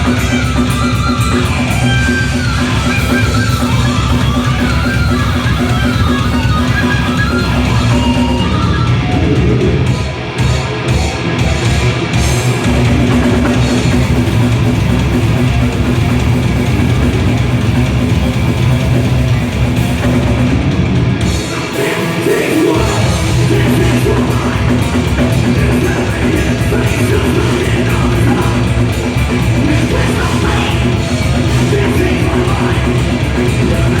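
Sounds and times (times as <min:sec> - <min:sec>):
electric guitar: 0:00.0 - 0:34.0
heavy rock music: 0:00.0 - 0:34.0
person singing: 0:21.4 - 0:34.0.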